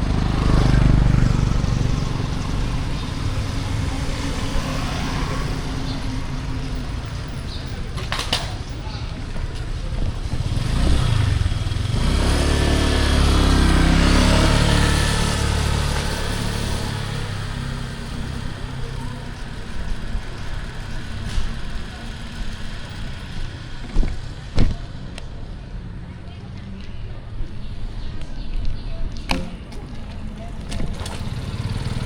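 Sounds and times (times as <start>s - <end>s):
vehicle engine passing: 0.0s - 7.9s, 9.8s - 25.6s, 30.4s - 32.0s.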